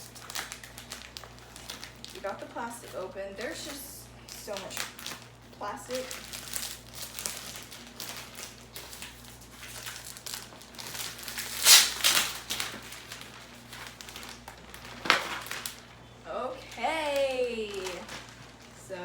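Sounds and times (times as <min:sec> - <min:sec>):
plastic wrapping crinkling: 0:00.0 - 0:19.0.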